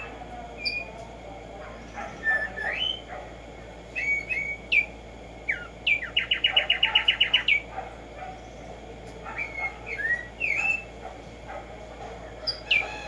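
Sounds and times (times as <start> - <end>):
sparrow singing whistles: 4.0 - 4.9, 5.5 - 7.6, 9.4 - 10.9.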